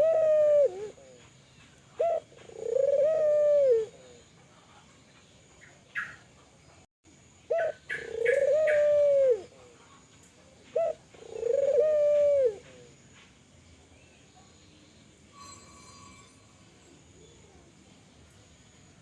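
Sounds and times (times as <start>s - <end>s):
dove cooing: 0.0s - 1.3s, 2.0s - 4.3s, 7.5s - 9.7s, 10.7s - 12.9s.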